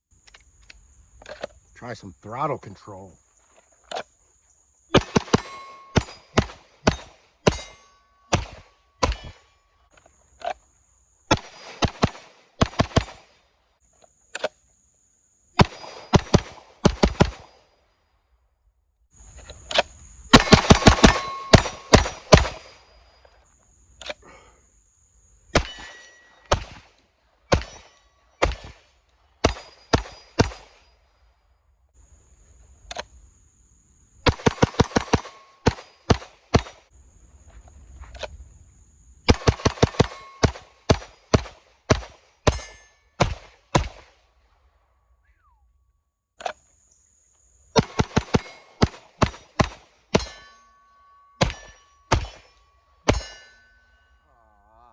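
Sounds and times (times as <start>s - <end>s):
pistol shots: 4.9s - 9.4s, 11.3s - 13.4s, 15.6s - 17.6s, 20.3s - 22.8s, 25.5s - 26.9s, 27.5s - 30.8s, 34.2s - 36.8s, 39.3s - 44.2s, 47.8s - 50.5s, 51.4s - 52.5s
steel targets ringing: 5.0s - 9.7s, 20.3s - 23.2s, 25.6s - 26.5s, 39.8s - 41.4s, 42.4s - 43.2s, 50.1s - 54.3s.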